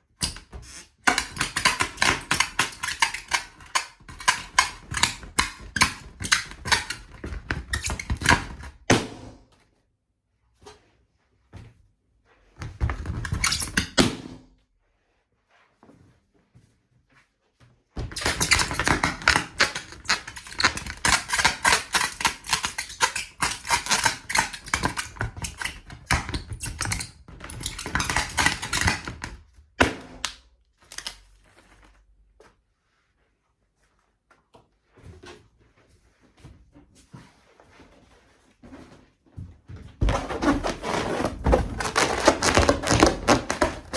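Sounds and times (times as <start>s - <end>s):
rubber balloon crackling and squeaking: 0.2s - 9.0s, 12.6s - 14.2s, 18.0s - 29.3s, 40.0s - 43.9s.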